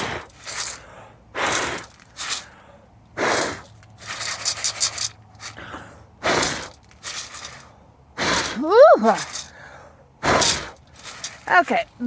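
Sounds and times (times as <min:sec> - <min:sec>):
person blowing puffs of breath: 0:00.0 - 0:04.5, 0:05.4 - 0:06.8.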